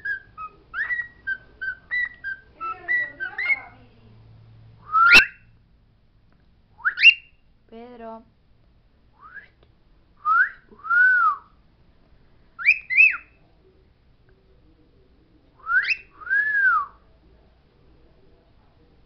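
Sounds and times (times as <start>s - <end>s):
bird whistling phrases: 0.0s - 3.8s, 4.9s - 5.5s, 6.8s - 7.4s, 12.6s - 13.4s, 15.6s - 16.9s.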